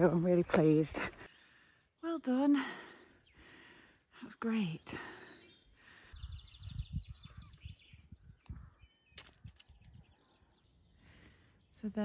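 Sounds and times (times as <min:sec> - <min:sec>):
wild birds singing: 0:00.0 - 0:12.0.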